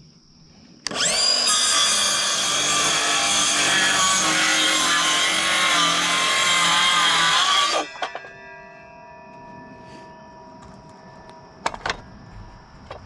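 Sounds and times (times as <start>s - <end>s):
saw cutting wood: 0.9s - 8.0s
metallic ringing: 7.3s - 13.0s.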